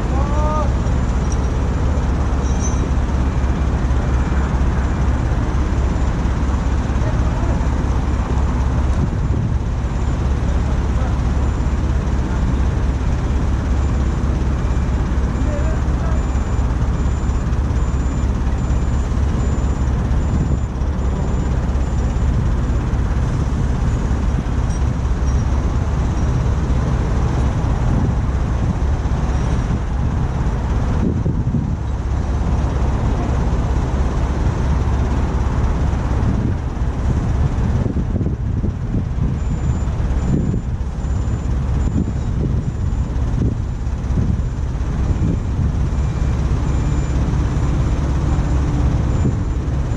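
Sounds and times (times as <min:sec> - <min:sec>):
diesel engine rumbling: 0:00.0 - 0:49.9.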